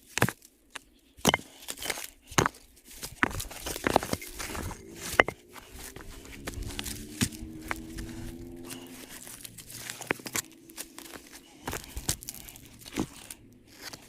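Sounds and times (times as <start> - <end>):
digging in earth and stones: 0.0 - 14.0.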